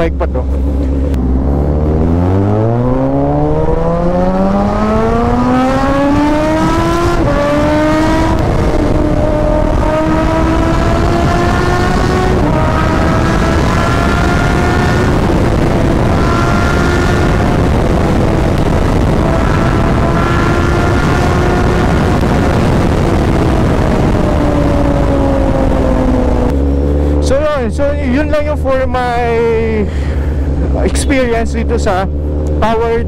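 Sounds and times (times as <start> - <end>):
motorcycle engine accelerating hard: 0.0 - 33.0
wind rush: 0.5 - 33.0.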